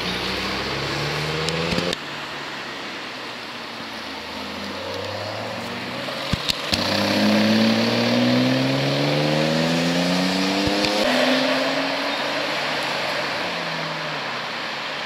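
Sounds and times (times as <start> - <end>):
car engine revving: 0.0 - 2.0, 4.2 - 14.6
sharp cracks: 6.2 - 7.2.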